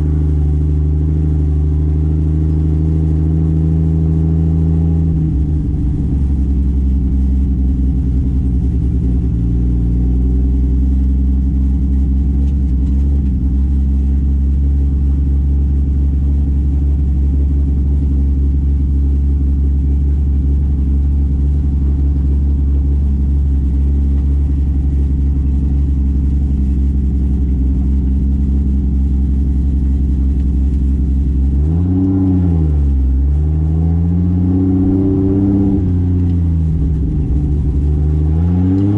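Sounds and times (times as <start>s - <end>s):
car engine running: 0.0s - 38.9s.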